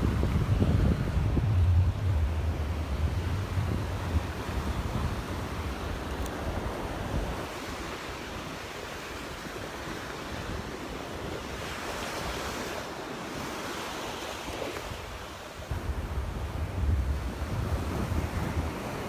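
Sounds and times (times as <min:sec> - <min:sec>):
wind buffeting microphone: 0:00.0 - 0:08.6, 0:14.4 - 0:19.0
surf breaking on beach: 0:00.0 - 0:08.7.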